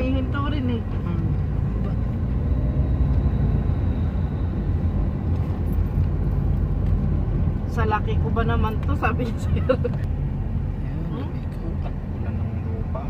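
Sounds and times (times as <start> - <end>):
vehicle cabin rumble: 0.0 - 13.0.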